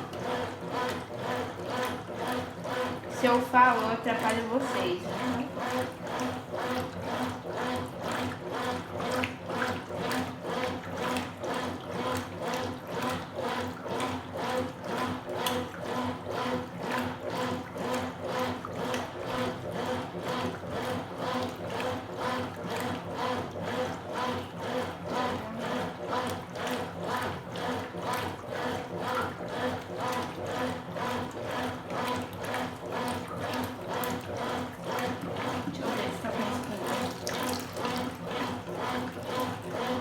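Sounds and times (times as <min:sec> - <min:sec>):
motor hum: 0:00.0 - 0:40.0
washing machine agitator swinging: 0:00.0 - 0:40.0
water sloshing: 0:24.7 - 0:40.0.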